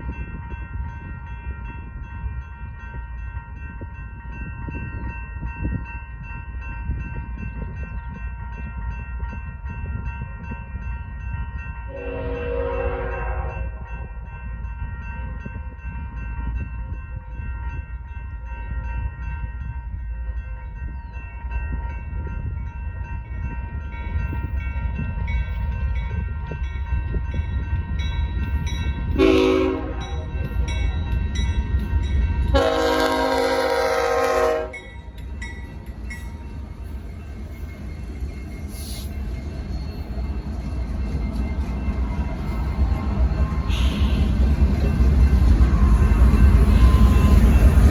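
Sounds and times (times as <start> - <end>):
freight train rumbling past: 0.0 - 47.9
locomotive horn blasts: 11.9 - 13.8, 29.2 - 30.2, 32.5 - 34.9, 43.7 - 44.4.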